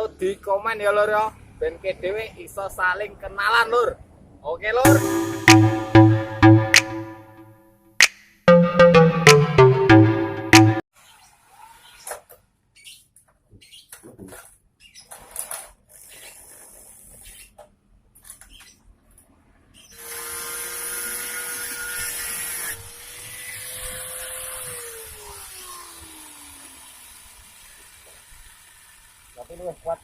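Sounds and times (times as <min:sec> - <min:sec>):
electric power tool running: 0:23.0 - 0:29.3.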